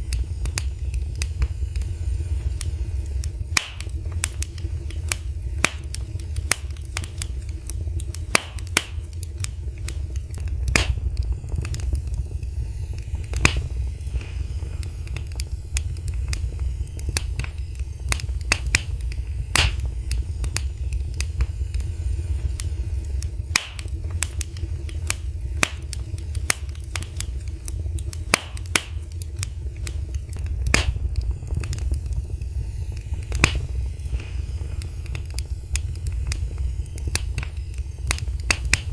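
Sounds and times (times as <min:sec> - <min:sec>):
steady low rumble: 0:00.0 - 0:38.9
wood fire crackling: 0:00.0 - 0:38.9.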